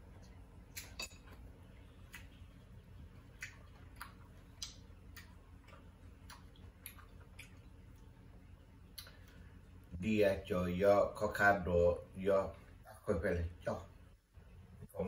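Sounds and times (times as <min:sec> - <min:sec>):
low steady hum: 0:00.0 - 0:15.0
man chewing with lip smacks: 0:00.1 - 0:08.2, 0:08.8 - 0:09.4.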